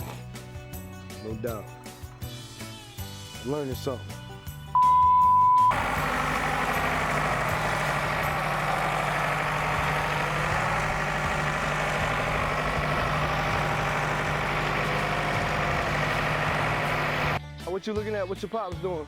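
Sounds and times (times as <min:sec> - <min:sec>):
engine idling: 0:05.7 - 0:17.4.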